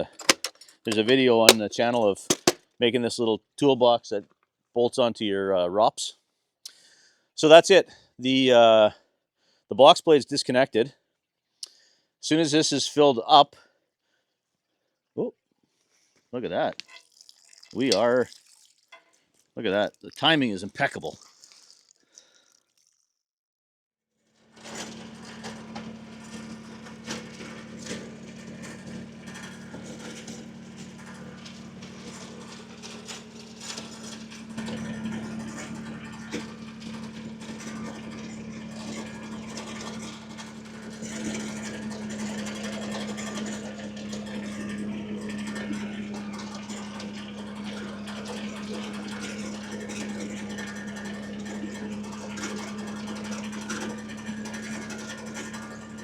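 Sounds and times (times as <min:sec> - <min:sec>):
tractor diesel engine running: 0:00.0 - 0:02.6, 0:24.4 - 0:56.0.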